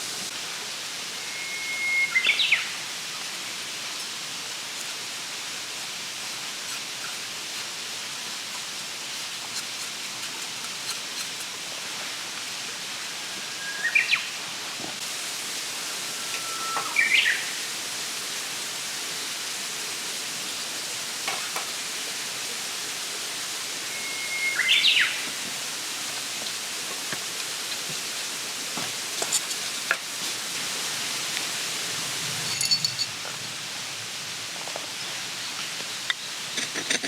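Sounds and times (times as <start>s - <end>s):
steady hiss: 0.0s - 37.0s
songbird singing: 1.2s - 2.8s, 13.5s - 14.4s, 16.2s - 17.6s, 23.8s - 25.4s.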